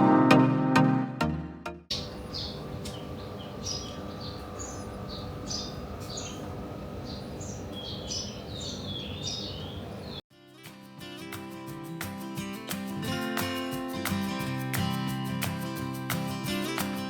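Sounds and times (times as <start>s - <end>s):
small birds chirping: 1.9s - 10.2s
steady outdoor background noise: 1.9s - 10.2s.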